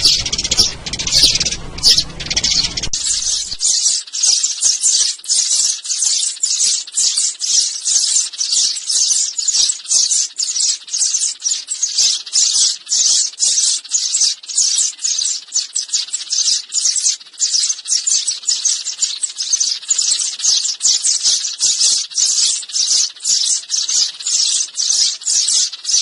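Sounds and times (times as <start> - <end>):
sparrows chirping rapidly: 0.0 - 26.0.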